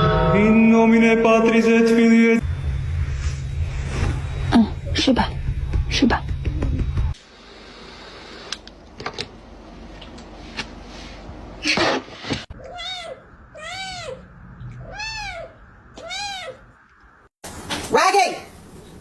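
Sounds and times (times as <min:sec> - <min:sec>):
cat meowing: 0:12.6 - 0:16.7.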